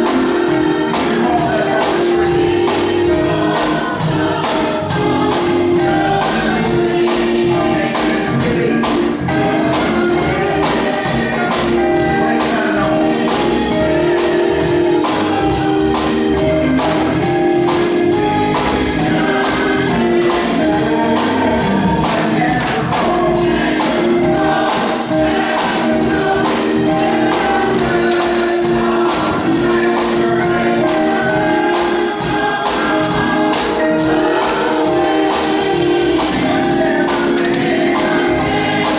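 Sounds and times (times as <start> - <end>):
choir singing over a beat: 0.0 - 38.9.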